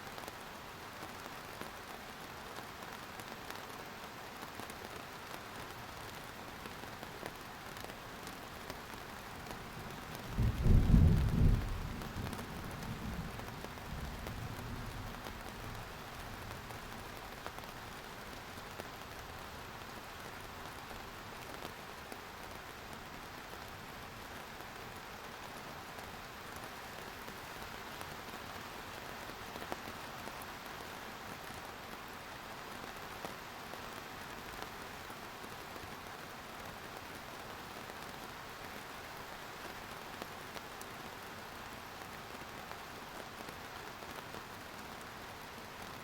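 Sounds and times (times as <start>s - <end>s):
steady rain: 0.0s - 46.0s
thunder rumbling: 10.2s - 14.4s.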